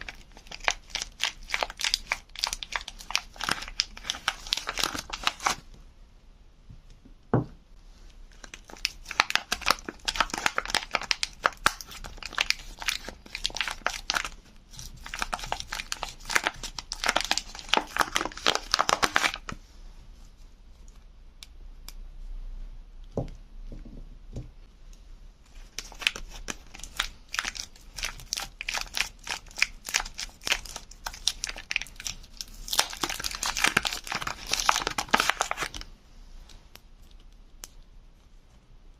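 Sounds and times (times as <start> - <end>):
packaging crinkling and tearing: 0.0 - 5.6, 8.3 - 19.6, 25.6 - 35.9.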